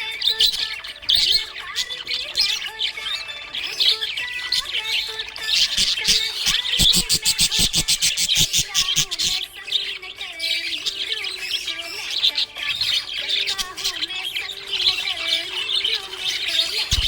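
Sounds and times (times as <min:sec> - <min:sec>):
parrots chirping and squawking: 0:00.0 - 0:17.0.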